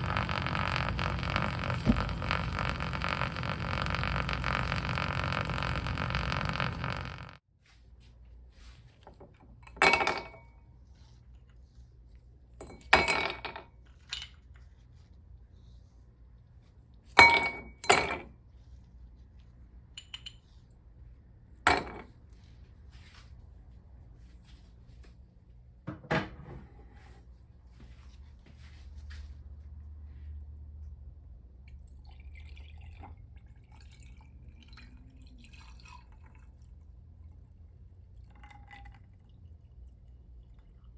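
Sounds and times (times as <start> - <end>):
kitchenware clinking: 9.7 - 10.5.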